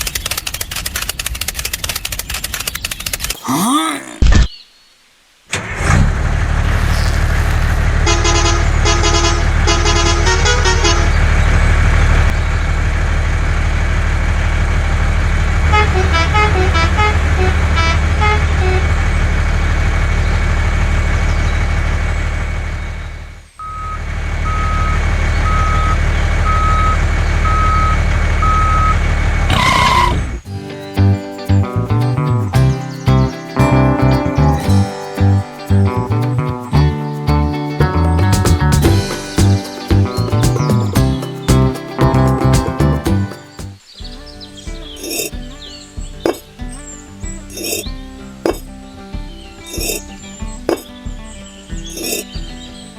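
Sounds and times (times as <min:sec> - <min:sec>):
musical horn playing tunes: 0:07.9 - 0:11.3, 0:15.7 - 0:19.1
reversing alarm beeps: 0:23.6 - 0:29.0.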